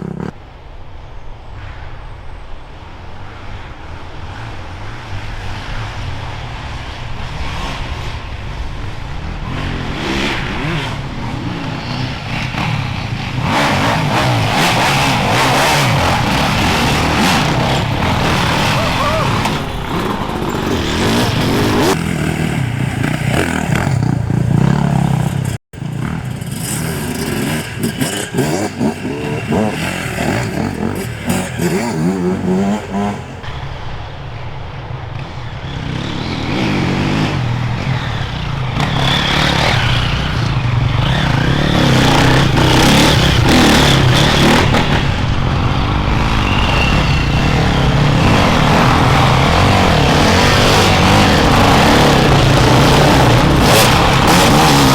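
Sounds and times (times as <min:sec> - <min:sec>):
motorcycle engines revving: 0:00.0 - 0:00.4, 0:03.3 - 0:54.9.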